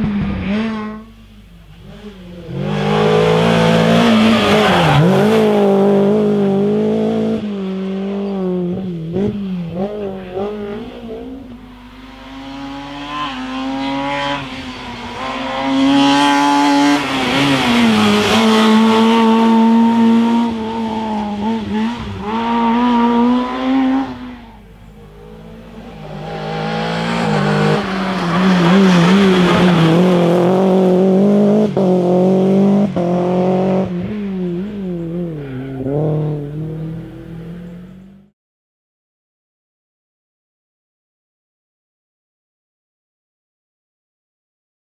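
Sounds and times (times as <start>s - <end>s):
rally car engines revving past: 0.0s - 38.3s.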